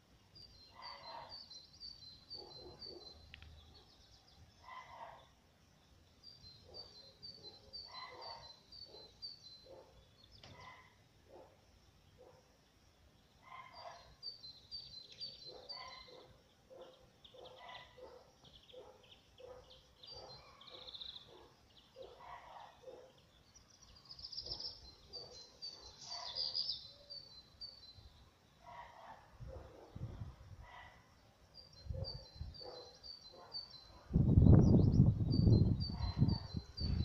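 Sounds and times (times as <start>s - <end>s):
high bird chirps: 13.5s - 22.4s.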